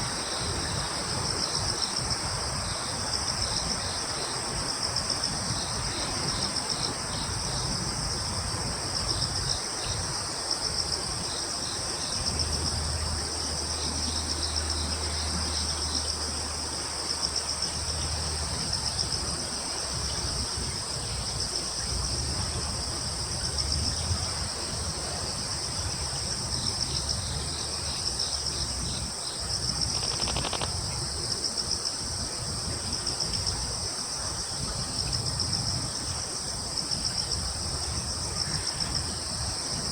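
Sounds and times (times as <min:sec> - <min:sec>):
crickets trilling: 0:00.0 - 0:39.9
quick insect chirps: 0:26.6 - 0:32.0
rapid ticking: 0:29.8 - 0:30.8.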